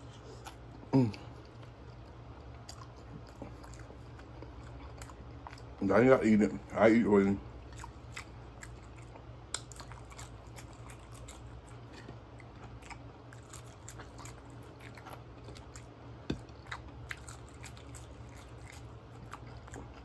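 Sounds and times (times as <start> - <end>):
person chewing with crunches: 0.0 - 6.8, 7.4 - 20.0.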